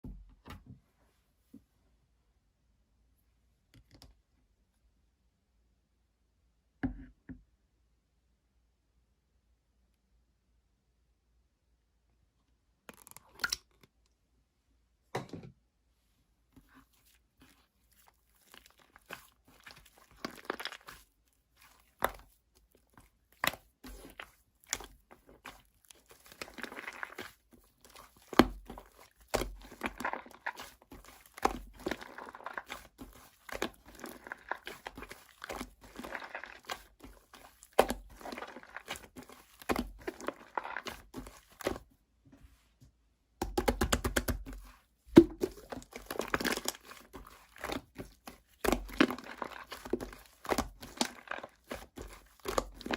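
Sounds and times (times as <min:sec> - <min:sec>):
crinkling and rustling handling: 0:16.0 - 0:43.0, 0:43.8 - 0:52.9.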